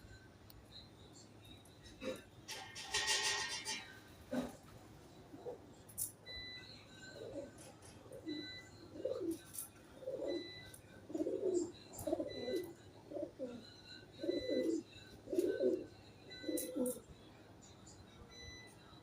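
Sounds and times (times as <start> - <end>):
pigeons cooing: 1.8 - 5.7, 7.1 - 17.1.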